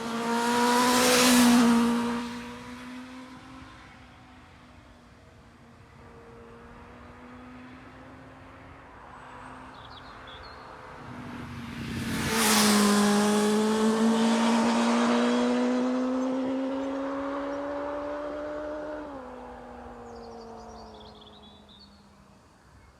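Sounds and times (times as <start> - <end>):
motorcycle engine passing by: 0.0 - 4.0, 10.9 - 21.6.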